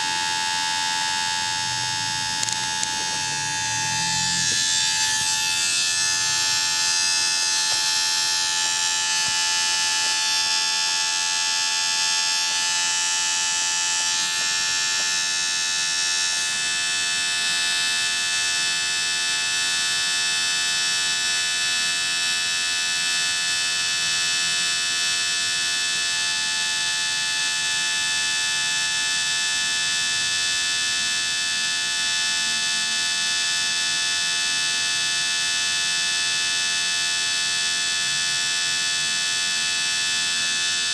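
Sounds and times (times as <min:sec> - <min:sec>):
small electric motor whining: 0:00.0 - 0:24.7.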